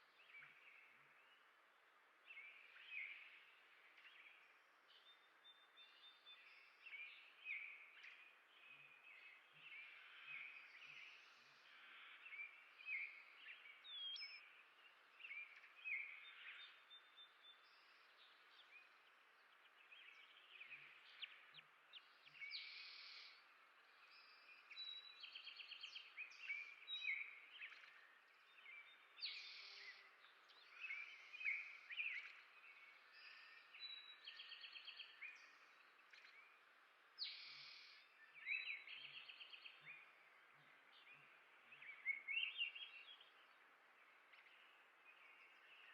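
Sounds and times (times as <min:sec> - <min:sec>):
songbirds chirping and trilling: 0:00.0 - 0:45.9
steady background hiss: 0:17.6 - 0:45.9.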